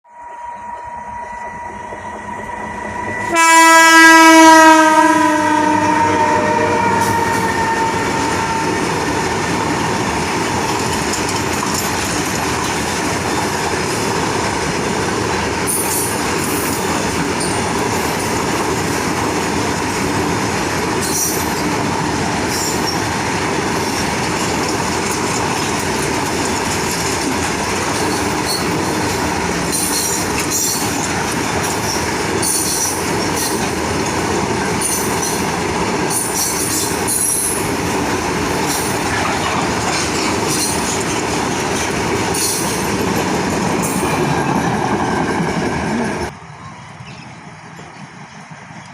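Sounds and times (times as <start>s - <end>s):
train horn: 0.0s - 9.2s
train rumbling on rails: 0.1s - 48.9s.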